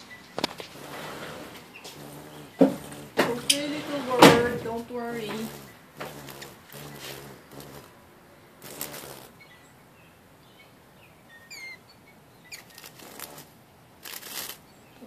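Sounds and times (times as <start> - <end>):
rustling: 0.0 - 8.0, 8.6 - 9.4, 12.5 - 15.0
small birds chirping: 0.0 - 15.0
falling bird call: 11.2 - 15.0.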